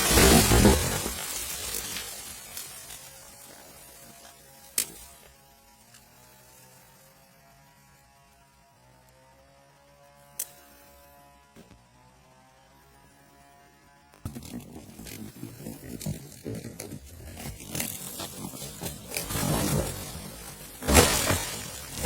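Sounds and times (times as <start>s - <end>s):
rough uneven noise: 0.0s - 7.0s, 14.2s - 22.0s.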